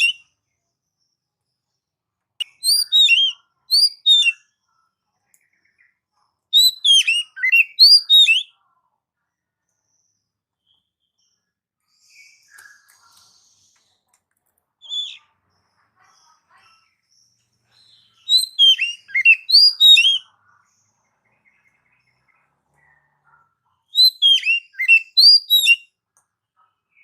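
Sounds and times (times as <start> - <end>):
bird singing whistles: 0.0 - 0.2, 2.4 - 4.4, 6.6 - 8.5, 14.8 - 15.2, 18.2 - 20.2, 23.9 - 25.9.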